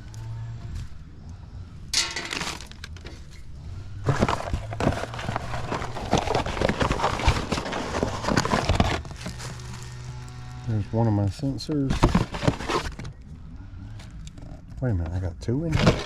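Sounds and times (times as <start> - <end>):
small hard parts clattering: 1.9 - 10.0, 11.7 - 13.2, 15.6 - 16.0.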